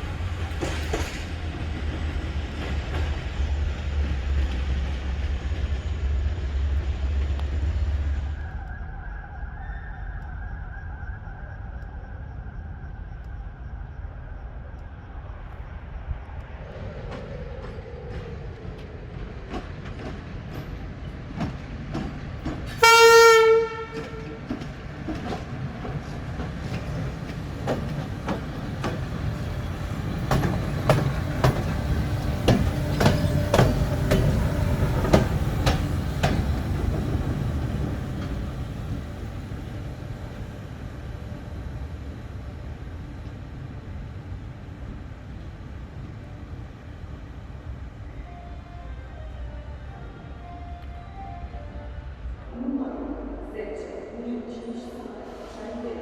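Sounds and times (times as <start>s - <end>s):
locomotive rumble: 16.0s - 55.8s
locomotive horn blast: 22.8s - 24.6s
wheels clicking over rail joints: 23.8s - 39.9s.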